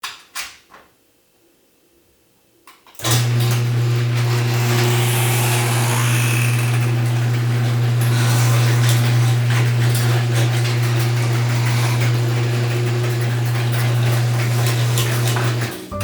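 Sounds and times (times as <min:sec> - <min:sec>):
loud machine hum: 0:03.2 - 0:16.0.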